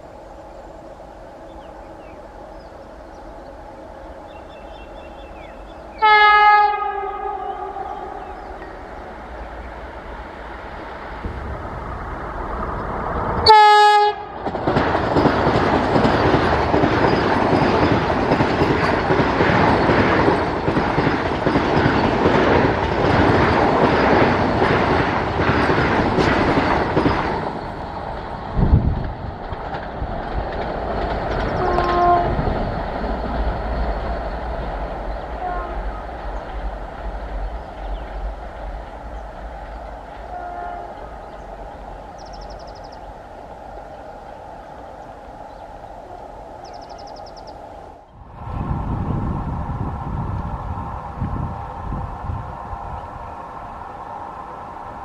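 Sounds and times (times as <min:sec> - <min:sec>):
train horn blast: 0:05.9 - 0:08.8, 0:13.4 - 0:14.4, 0:31.6 - 0:32.5, 0:35.4 - 0:36.1, 0:40.2 - 0:41.5
train wheels clattering: 0:07.8 - 0:45.6.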